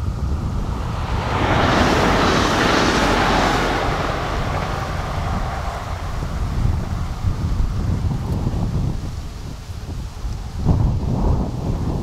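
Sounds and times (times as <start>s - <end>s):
train passing at speed: 0.0s - 8.6s.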